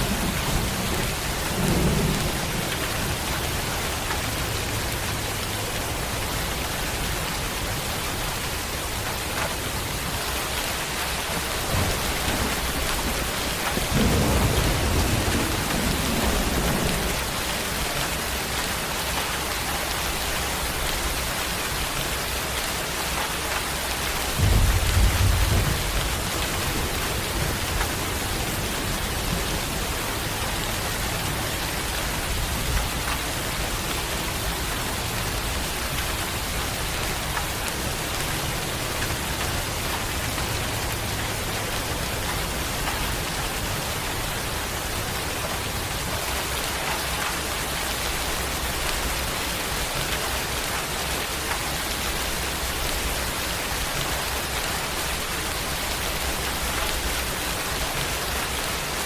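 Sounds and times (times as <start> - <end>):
low thunder rumble: 0.0 - 7.8, 11.3 - 18.5, 24.2 - 37.0
steady rain falling: 0.0 - 59.0.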